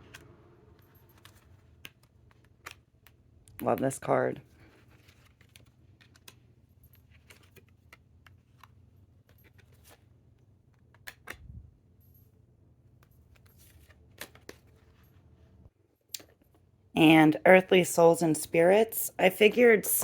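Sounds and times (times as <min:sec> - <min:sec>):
low room hum: 0:00.0 - 0:20.0
cards clicking and tapping: 0:01.1 - 0:03.8, 0:07.1 - 0:10.0, 0:10.6 - 0:11.4.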